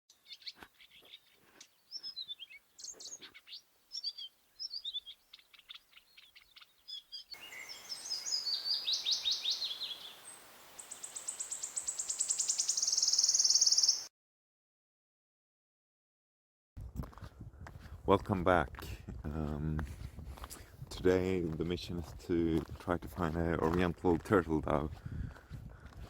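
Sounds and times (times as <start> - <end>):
bird song with fast trills: 0.1 - 14.1
small birds chirping: 0.1 - 14.1.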